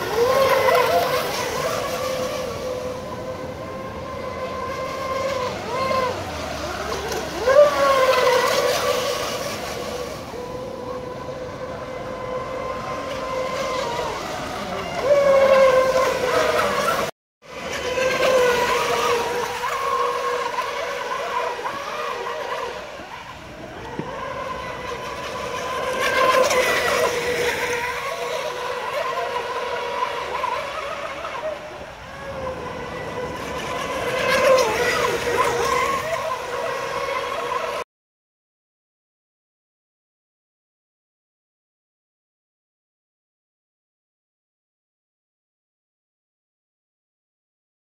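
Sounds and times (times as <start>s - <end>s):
model boat electric motors whining: 0.0s - 37.8s.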